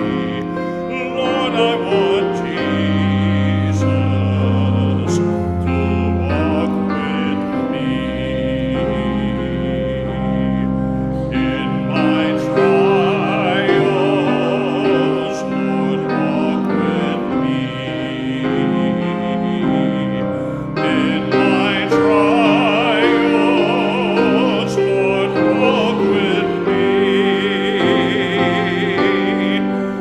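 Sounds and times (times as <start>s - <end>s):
congregation singing a hymn: 0.0s - 30.0s
piano or organ chords: 0.0s - 30.0s.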